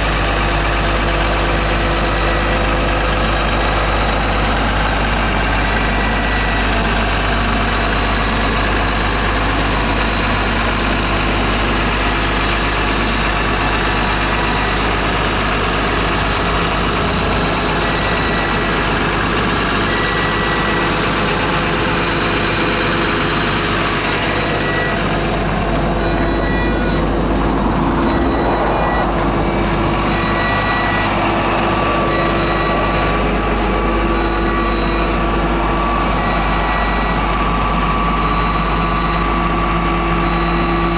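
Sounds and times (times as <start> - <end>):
diesel engine running loudly: 0.0 - 40.9.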